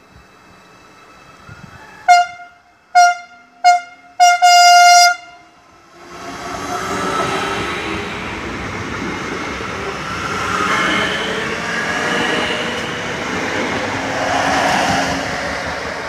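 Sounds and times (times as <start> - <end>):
faint high whining tones: 0.0 - 3.6
train wheels rumbling: 5.7 - 16.0.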